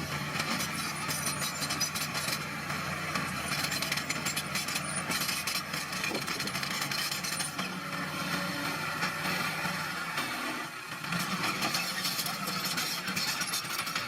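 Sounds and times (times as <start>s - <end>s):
bulldozer diesel engine running: 0.0s - 14.0s
clanks and rattles of crushed stone: 3.2s - 7.7s.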